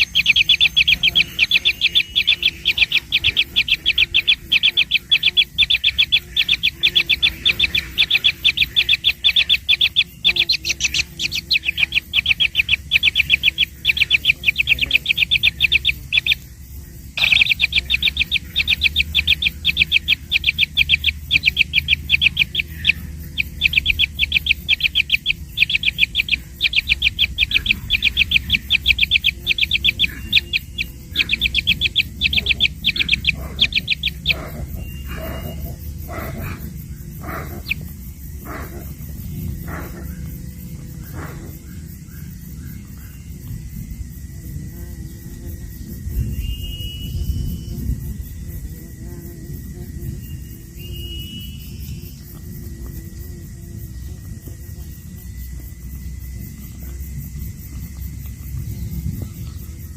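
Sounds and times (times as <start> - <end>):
baby birds chirping: 0.0 - 16.4, 17.2 - 41.8.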